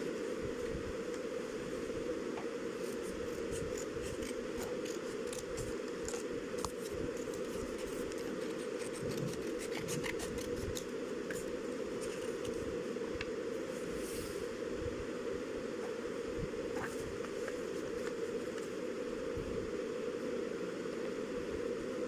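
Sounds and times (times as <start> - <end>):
low background hum: 0.0 - 22.0
paper crackling and rustling: 2.8 - 12.7.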